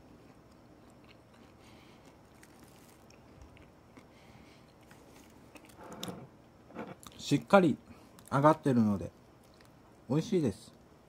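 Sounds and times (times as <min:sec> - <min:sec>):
person chewing crunchy fried food: 0:00.0 - 0:05.8.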